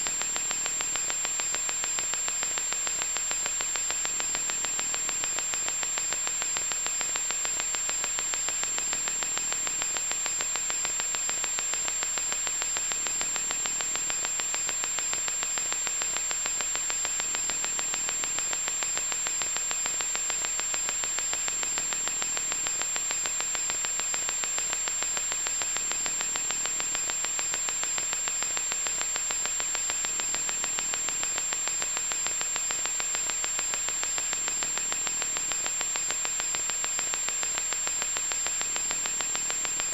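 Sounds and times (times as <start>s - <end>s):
harsh electronic static hiss: 0.0s - 39.9s.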